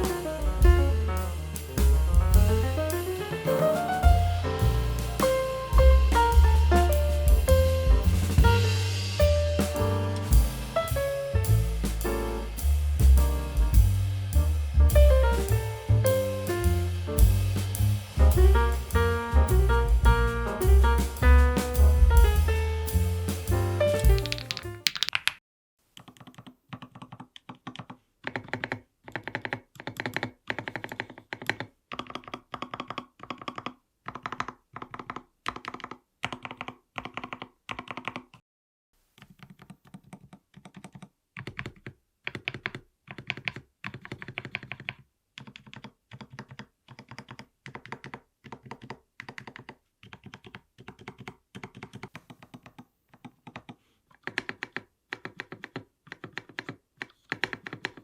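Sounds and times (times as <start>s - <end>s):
mechanical keyboard keys clacking: 24.0s - 25.4s, 39.4s - 58.0s.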